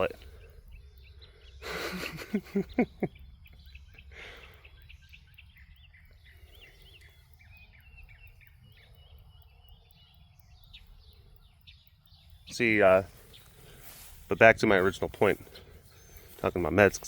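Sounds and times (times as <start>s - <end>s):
songbirds chirping and whistling: 0.0s - 17.0s.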